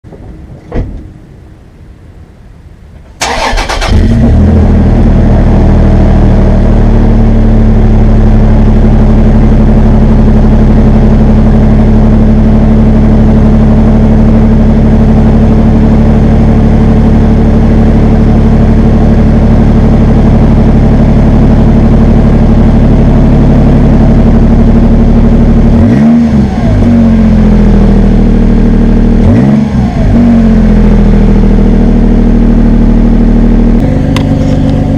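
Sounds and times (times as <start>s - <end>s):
engine cranking and idling: 3.0s - 5.1s, 33.7s - 34.9s
engine revving: 3.2s - 34.9s.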